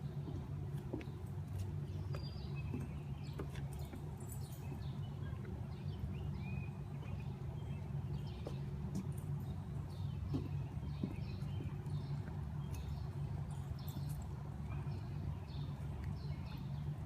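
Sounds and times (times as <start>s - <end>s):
faint footsteps on trail: 0.0s - 17.0s
small birds chirping: 0.0s - 17.0s
steady low rumble: 0.0s - 17.0s.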